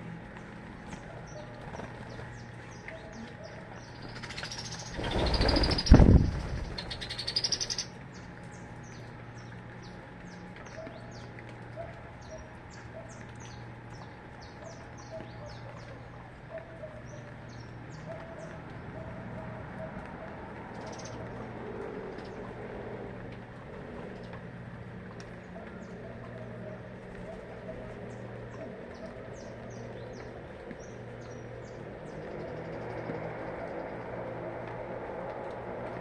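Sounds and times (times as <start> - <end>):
small birds chirping: 0.3 - 21.5, 25.2 - 34.2
wings flapping: 4.0 - 7.8.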